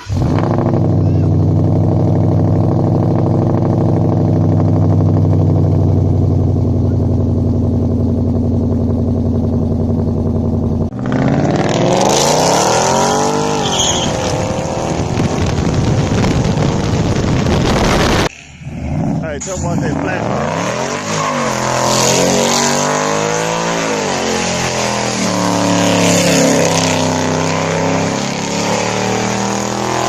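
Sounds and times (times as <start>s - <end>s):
engine revving: 0.0s - 30.0s
truck engine idling: 4.6s - 10.9s.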